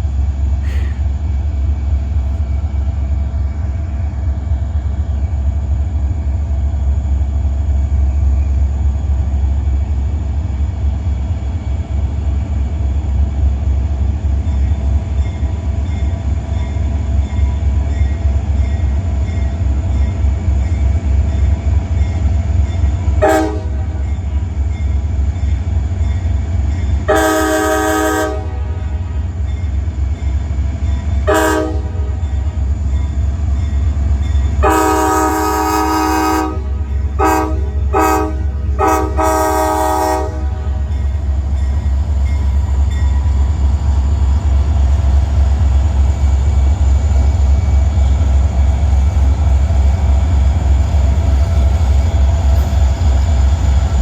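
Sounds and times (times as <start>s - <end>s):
diesel locomotive idling rumble: 0.0s - 54.0s
locomotive air horn blasts: 23.2s - 24.0s, 27.1s - 29.2s, 31.3s - 32.2s, 34.6s - 40.9s.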